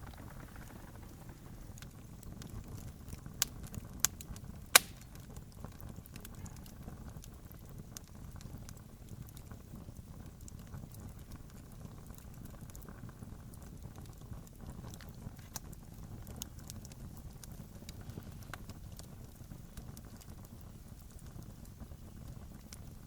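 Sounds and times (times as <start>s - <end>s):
campfire crackling: 0.0s - 23.0s.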